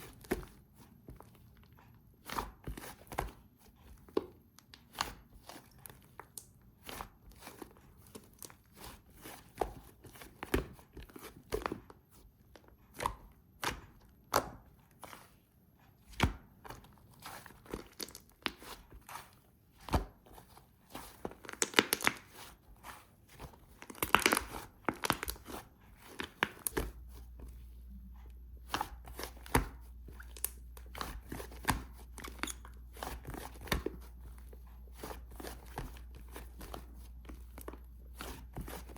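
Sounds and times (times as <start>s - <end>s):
slime squishing and popping: 21.3s - 22.3s
low steady hum: 22.2s - 38.9s.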